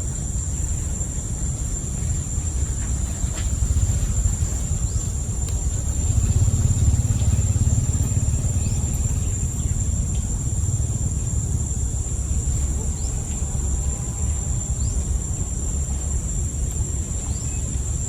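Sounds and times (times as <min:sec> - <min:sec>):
heavy low rumble: 0:00.0 - 0:15.4
high-pitched insect drone: 0:00.0 - 0:16.3.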